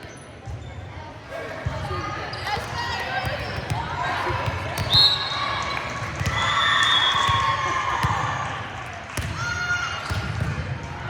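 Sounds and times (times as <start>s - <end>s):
volleyball being hit and bouncing: 6.0s - 8.4s, 9.2s - 10.8s.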